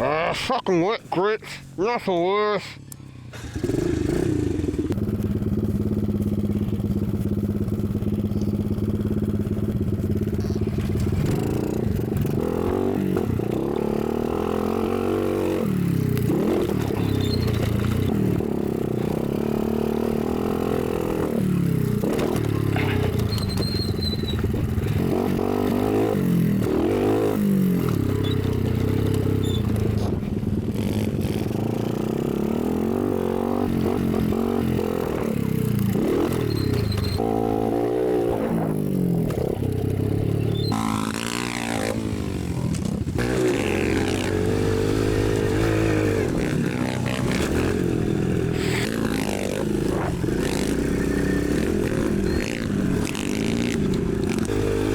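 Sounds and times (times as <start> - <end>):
dirt bike engine revving: 3.3 - 54.9.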